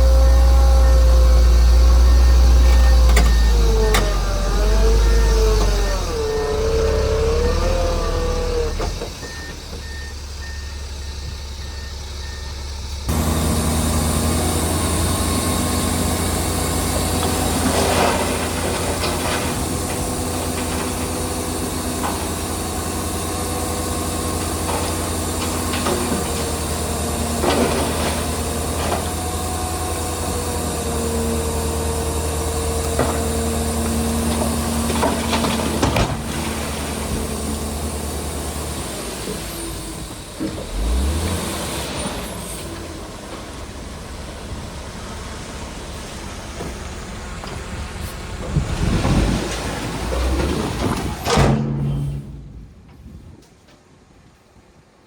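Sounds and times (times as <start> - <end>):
reversing beeper: 0.0 - 14.4
heavy diesel engines running: 0.0 - 54.9.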